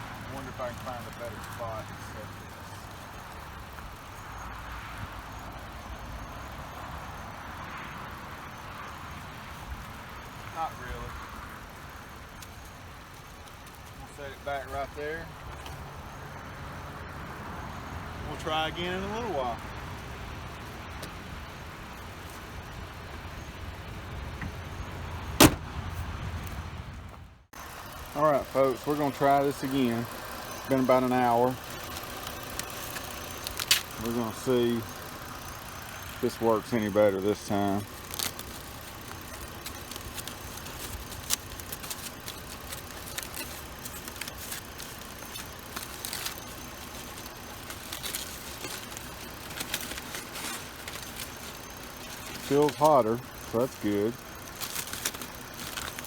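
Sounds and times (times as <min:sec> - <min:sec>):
car engine idling: 0:00.0 - 0:25.7, 0:27.4 - 0:56.0
low steady rumble: 0:19.1 - 0:56.0
car hood slamming: 0:25.4 - 0:25.7.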